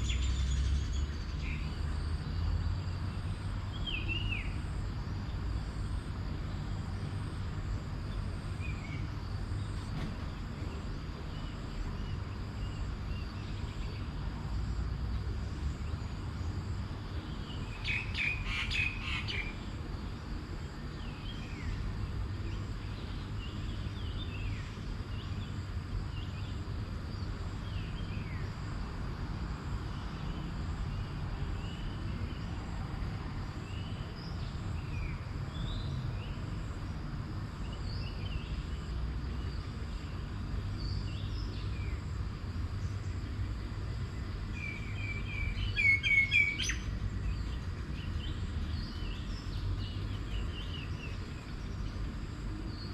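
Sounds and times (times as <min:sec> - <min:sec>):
faint high hum: 0:00.0 - 0:52.9
birds chirping: 0:15.9 - 0:21.9, 0:37.6 - 0:52.9.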